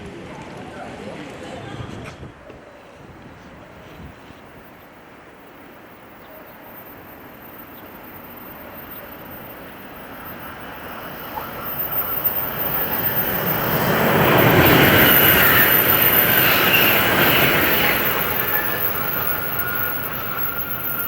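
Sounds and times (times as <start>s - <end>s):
train passing with rushing roar: 0.0s - 21.0s.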